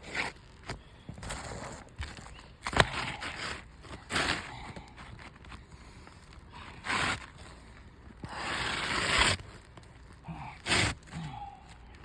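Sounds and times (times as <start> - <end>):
scraping on roof shingles: 0.0 - 5.6.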